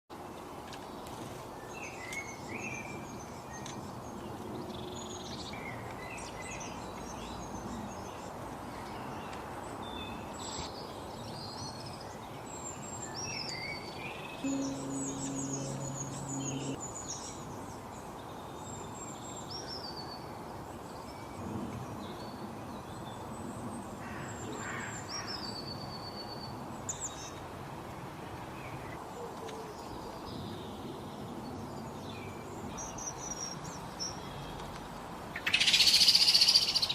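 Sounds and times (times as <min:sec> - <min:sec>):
background hiss: 0:14.0 - 0:18.0
low hum: 0:14.4 - 0:16.8.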